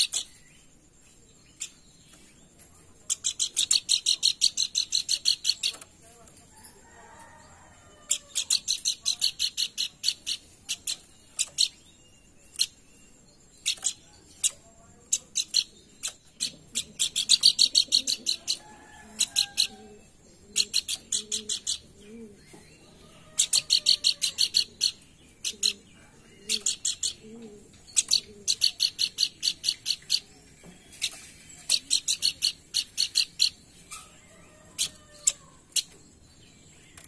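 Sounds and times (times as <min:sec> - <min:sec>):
rapid sharp bird chirping: 0:00.0 - 0:00.7, 0:03.1 - 0:05.9, 0:08.1 - 0:18.6, 0:20.5 - 0:21.9, 0:26.5 - 0:27.2, 0:27.8 - 0:36.0.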